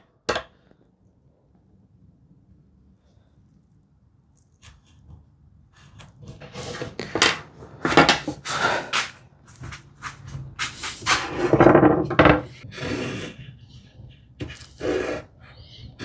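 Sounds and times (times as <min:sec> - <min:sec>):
scraping strokes on workbench: 0:05.8 - 0:16.0.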